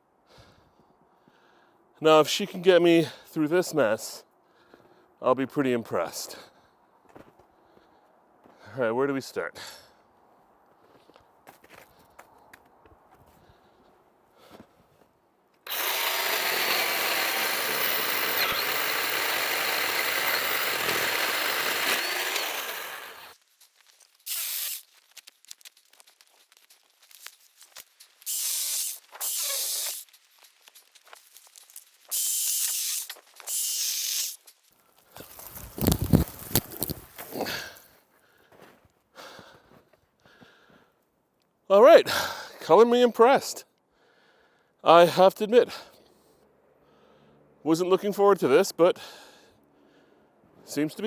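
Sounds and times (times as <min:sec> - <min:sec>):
electric chainsaw cutting wood: 0:15.6 - 0:23.4, 0:24.3 - 0:24.8, 0:28.3 - 0:30.1, 0:31.5 - 0:34.5, 0:35.3 - 0:37.4.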